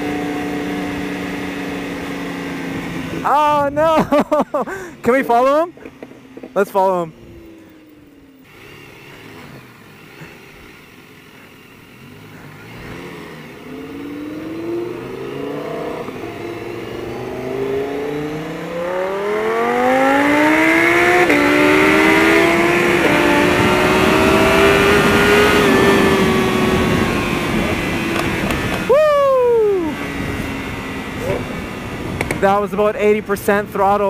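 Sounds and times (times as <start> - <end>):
motorcycle engine accelerating: 0.0 - 34.0
wind rush: 21.5 - 32.4.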